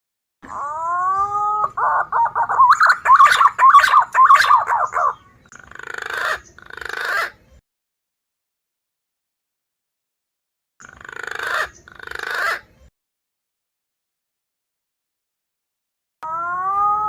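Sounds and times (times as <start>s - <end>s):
green pigeon call: 0.4s - 7.4s, 10.8s - 12.8s, 16.2s - 17.0s.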